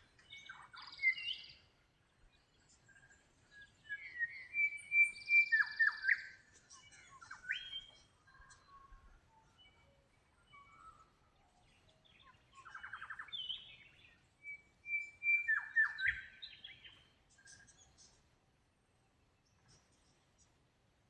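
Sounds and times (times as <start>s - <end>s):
birds singing: 0.0s - 20.8s.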